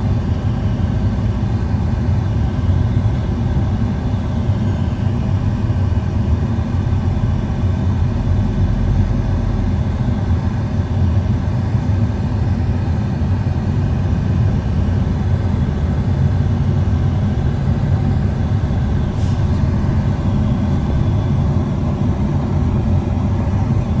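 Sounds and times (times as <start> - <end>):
vehicle rumble: 14.1 - 24.0.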